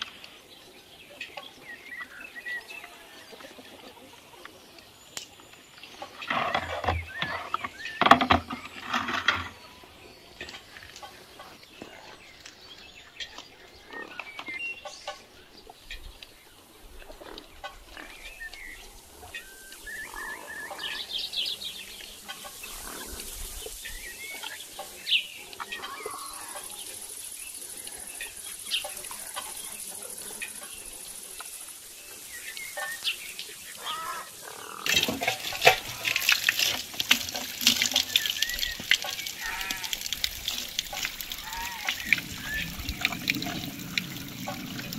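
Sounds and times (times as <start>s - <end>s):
chickens clucking: 3.2s - 4.7s, 34.8s - 44.9s
soil and plastic planter rustling: 6.0s - 9.8s, 34.8s - 44.9s
water splashing from garden hose: 32.0s - 44.9s.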